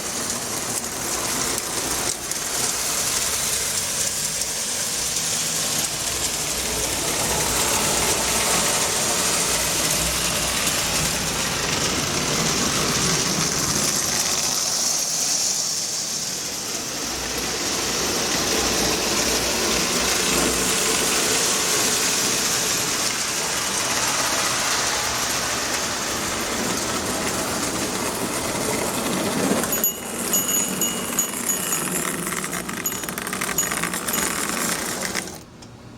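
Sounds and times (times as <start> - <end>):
toy train whirring and rattling: 0.0 - 35.6.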